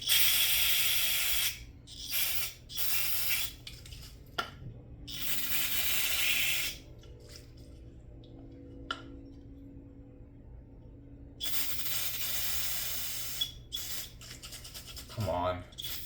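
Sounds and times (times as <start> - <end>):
aerosol can spraying: 0.0 - 3.6, 5.1 - 6.8, 11.4 - 15.2, 15.8 - 16.0.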